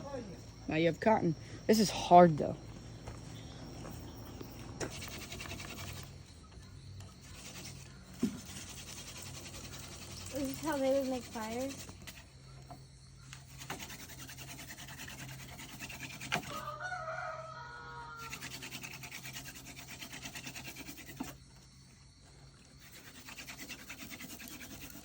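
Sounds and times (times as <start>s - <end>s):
wood scraping on wood: 3.0s - 17.4s, 18.2s - 21.8s, 22.4s - 25.0s
rooster crowing: 16.4s - 18.6s.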